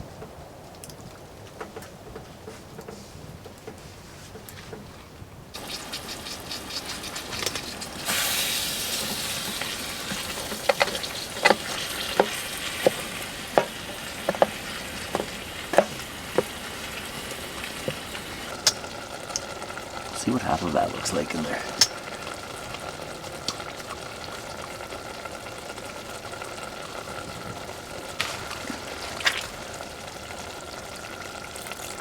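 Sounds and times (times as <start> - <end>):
food sizzling in a pan: 5.6 - 20.2.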